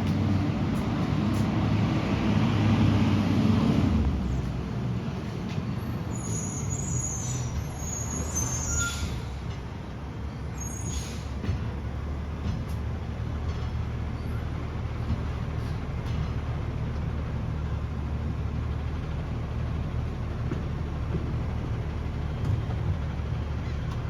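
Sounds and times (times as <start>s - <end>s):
short high squeaks: 6.2s - 9.4s
diesel truck engine running: 11.4s - 24.0s.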